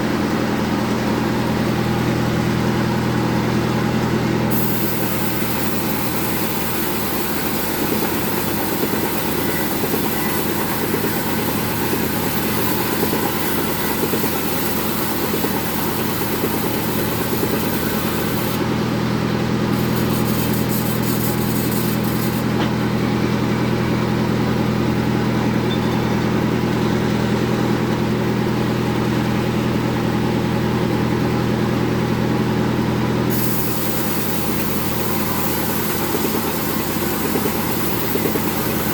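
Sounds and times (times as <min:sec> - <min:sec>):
band sawmill drone: 0:00.0 - 0:38.9
saw blade hiss: 0:04.5 - 0:18.6, 0:19.7 - 0:22.6, 0:33.3 - 0:38.9.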